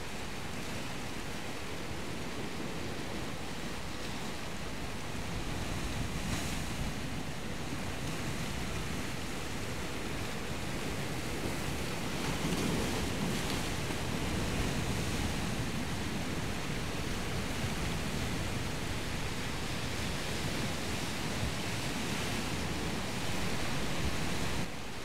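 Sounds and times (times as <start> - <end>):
surf and waves: 0.0 - 25.0.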